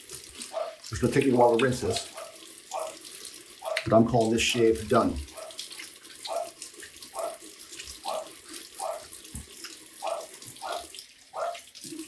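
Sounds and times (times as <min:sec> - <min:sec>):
tap running into a sink: 0:03.6 - 0:11.0.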